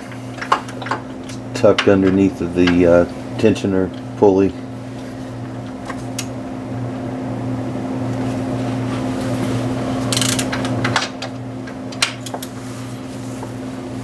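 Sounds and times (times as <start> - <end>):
steady low hum: 0.0 - 14.0
ratchet clicking on bolt: 10.1 - 11.0.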